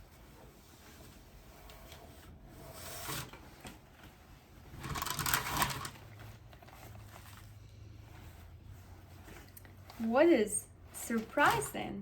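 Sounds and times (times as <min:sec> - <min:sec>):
dress and packaging rustling: 0:03.4 - 0:12.0.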